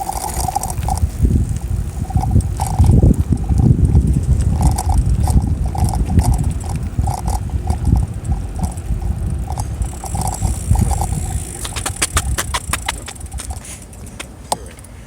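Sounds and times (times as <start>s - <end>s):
wind rumbling on microphone: 0.0s - 14.5s
light rattles: 0.0s - 15.0s
road noise: 0.0s - 15.0s.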